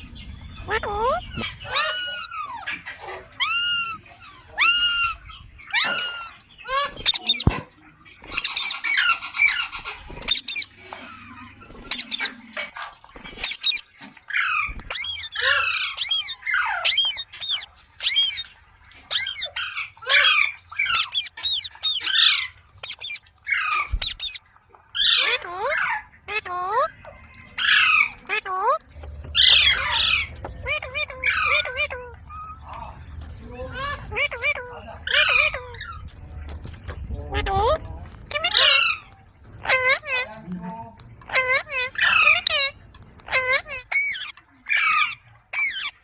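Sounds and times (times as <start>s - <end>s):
parakeet squawking and chattering: 0.2s - 46.0s.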